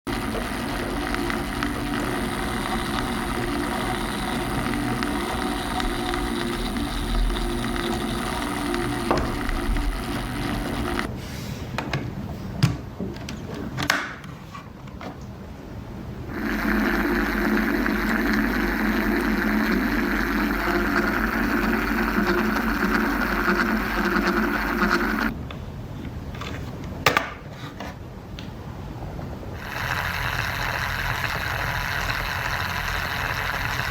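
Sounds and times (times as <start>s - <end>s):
small motor whirring: 0.0s - 11.1s, 16.3s - 25.3s, 29.6s - 33.9s.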